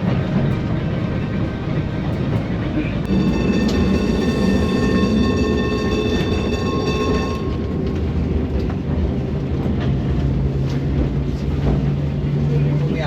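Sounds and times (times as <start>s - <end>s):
tram rumbling on rails: 0.0s - 13.0s
low hum: 0.6s - 11.4s
high whine: 3.0s - 9.1s.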